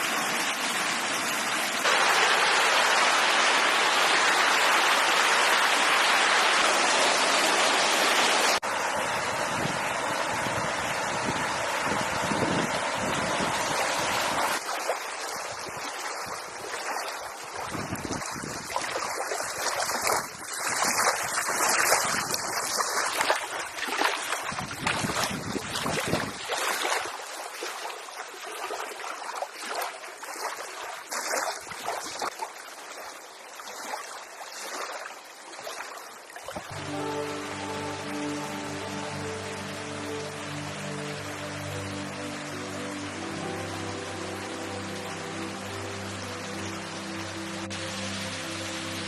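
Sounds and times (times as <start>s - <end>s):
storm wind and water rushing: 0.0s - 28.1s, 36.4s - 49.0s
wind rumble on microphone: 8.8s - 14.6s, 17.5s - 22.8s, 24.4s - 26.6s.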